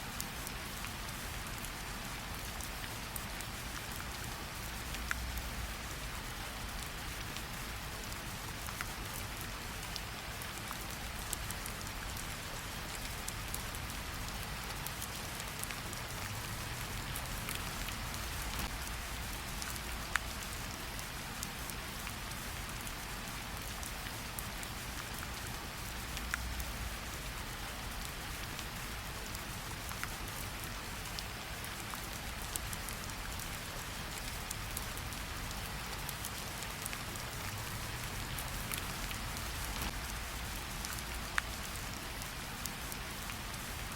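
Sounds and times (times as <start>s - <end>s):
steady rain hiss: 0.0s - 43.9s
raindrop ticks: 12.9s - 21.1s, 23.6s - 30.4s, 31.1s - 43.8s.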